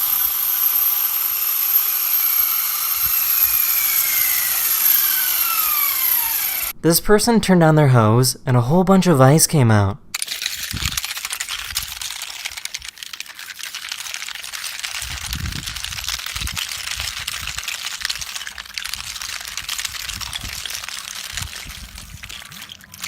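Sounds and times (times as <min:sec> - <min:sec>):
hose spitting ice and water: 0:10.2 - 0:23.0.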